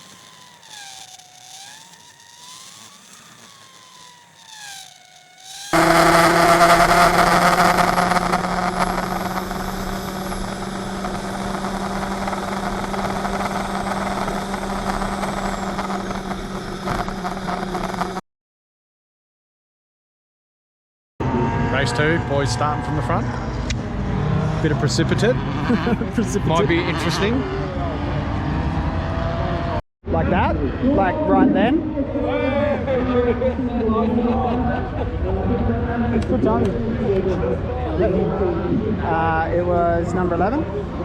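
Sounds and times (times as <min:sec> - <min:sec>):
faint warbling tone: 0:00.0 - 0:18.2
race car engine: 0:00.0 - 0:18.2, 0:21.2 - 0:29.8.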